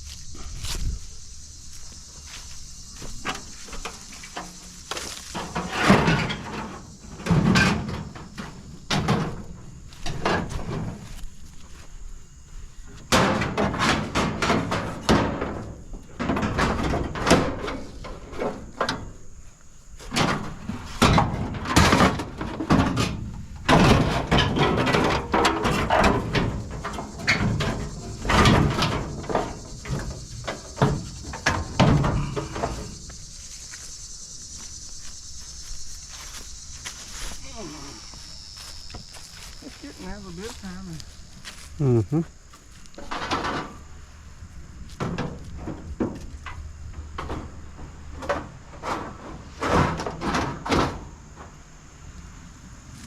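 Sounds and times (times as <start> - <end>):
scrap metal clanking into truck bed: 3.1 - 11.2, 13.1 - 19.2, 20.0 - 33.0, 43.0 - 43.8, 45.0 - 51.5.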